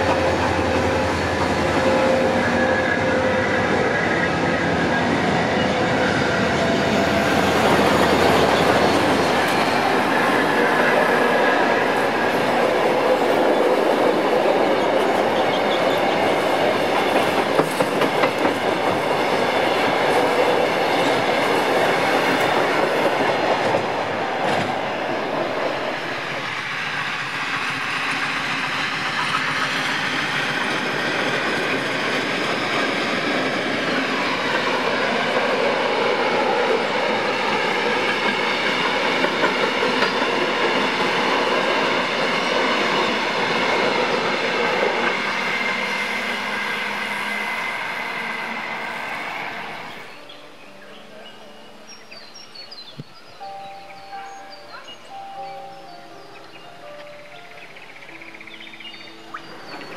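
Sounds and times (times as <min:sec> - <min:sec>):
train wheels clattering over rail joints: 0:13.2 - 0:24.8, 0:26.4 - 0:45.3.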